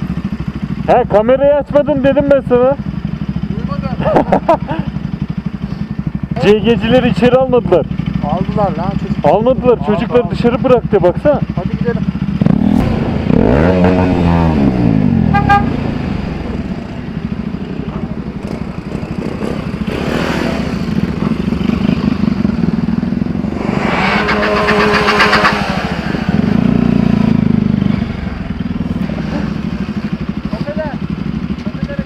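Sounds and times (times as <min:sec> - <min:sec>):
motorcycle engines running: 0:00.0 - 0:32.0
horn-like tone: 0:13.5 - 0:17.2, 0:23.9 - 0:26.4.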